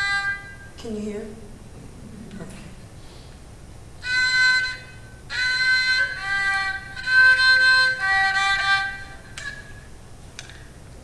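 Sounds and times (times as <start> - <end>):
bowed two-string fiddle: 4.0 - 9.9.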